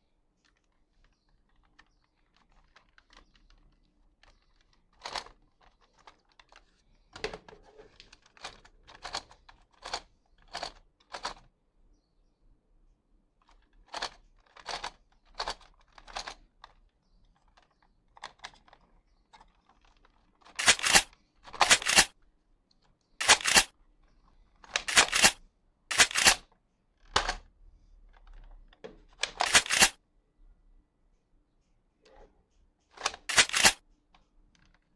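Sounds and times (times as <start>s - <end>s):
toy gun clicking and snapping: 19.8s - 22.1s, 23.2s - 23.7s, 24.6s - 26.4s, 29.2s - 30.0s, 33.0s - 33.8s.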